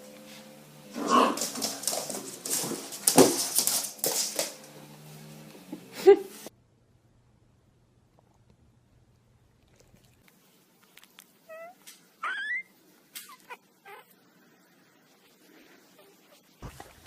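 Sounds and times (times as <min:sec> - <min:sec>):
dog whimpering and yelping: 0:11.5 - 0:14.2.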